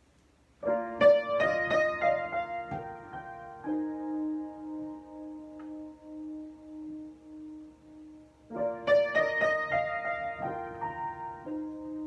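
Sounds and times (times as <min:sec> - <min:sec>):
solo piano: 0:00.4 - 0:12.0.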